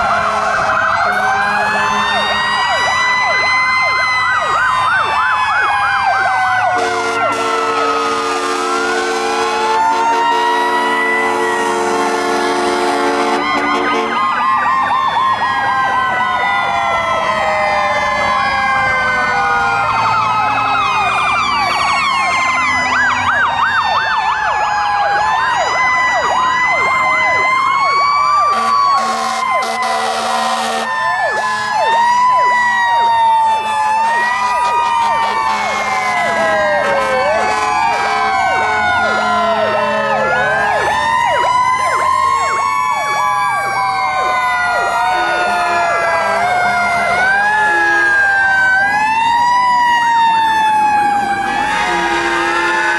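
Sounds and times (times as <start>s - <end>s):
loud air horn blast: 0.0s - 2.4s, 6.7s - 14.4s, 28.5s - 31.8s, 34.9s - 40.4s, 45.2s - 48.4s, 51.4s - 52.9s
fire truck sirens wailing: 0.0s - 52.9s.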